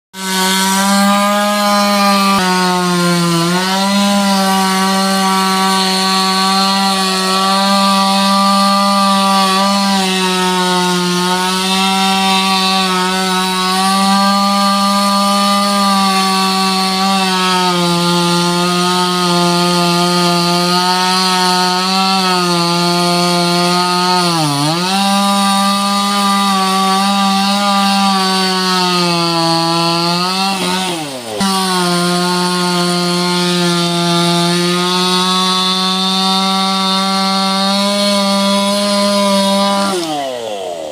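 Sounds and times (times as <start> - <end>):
chainsaw cutting into tree: 0.1 - 40.9.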